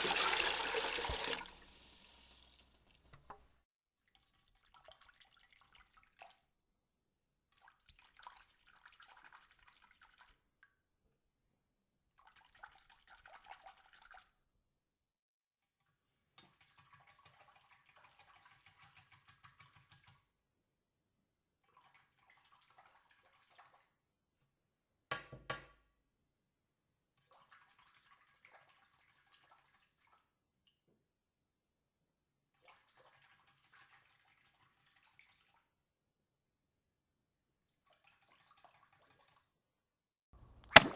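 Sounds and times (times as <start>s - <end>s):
water splashing and dripping: 0.0s - 3.4s, 40.6s - 40.9s
sharp loud water splash: 40.6s - 40.9s.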